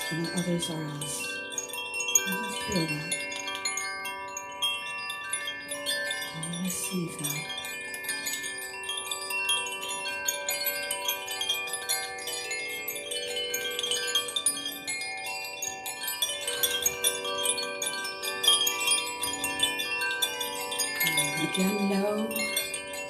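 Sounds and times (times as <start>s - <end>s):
chimes ringing: 0.0s - 23.0s.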